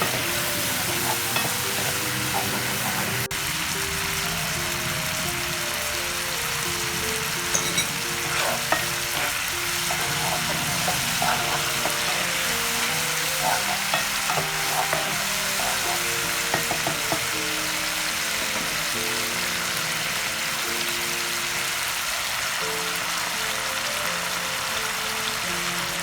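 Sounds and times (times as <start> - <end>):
utensil scraping a pan: 0.0 - 3.3, 6.8 - 19.0
food sizzling in a pan: 0.0 - 26.0
soft melodic music: 0.0 - 26.0.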